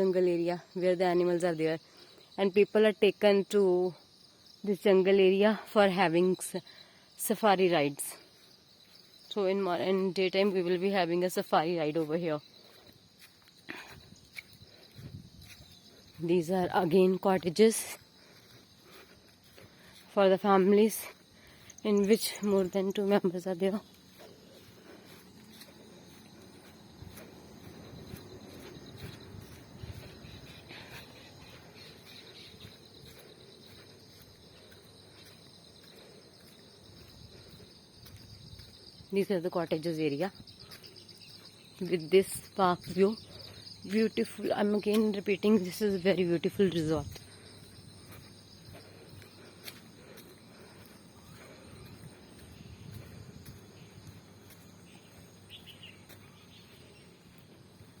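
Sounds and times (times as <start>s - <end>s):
small bird chirps: 54.9s - 57.0s.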